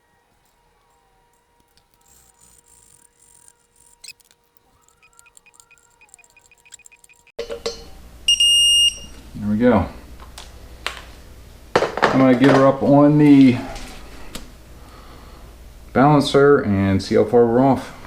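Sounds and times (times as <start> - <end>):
ratchet clicking faintly: 0.0 - 7.4.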